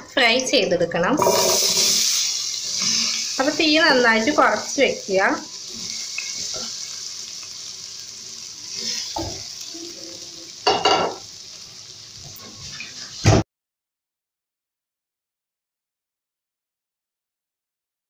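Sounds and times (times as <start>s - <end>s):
vegetable strips sizzling in hot oil: 1.1s - 13.4s.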